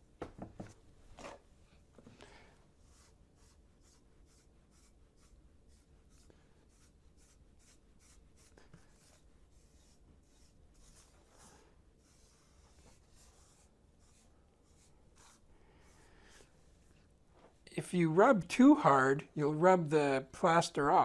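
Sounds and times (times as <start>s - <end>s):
damp sponge rubbing filler: 2.8s - 17.1s.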